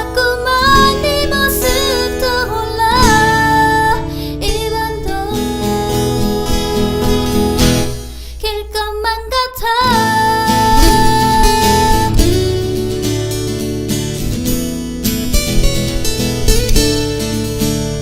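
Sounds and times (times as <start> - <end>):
pop song with singer and band: 0.0 - 13.0.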